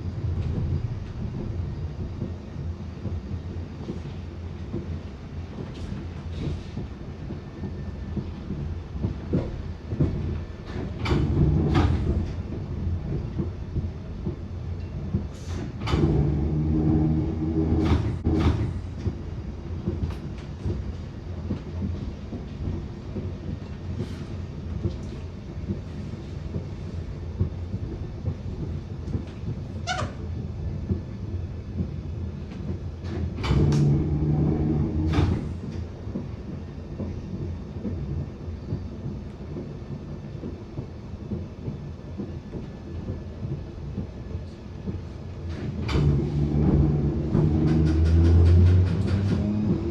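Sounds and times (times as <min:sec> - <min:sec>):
underground train rumbling: 0:00.0 - 0:49.9.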